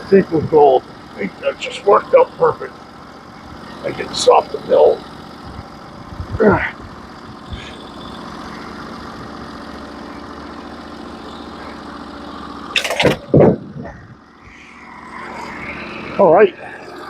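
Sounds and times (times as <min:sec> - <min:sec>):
sawmill engine idling: 0:00.0 - 0:17.0
loud clatter and scrape: 0:12.7 - 0:13.6.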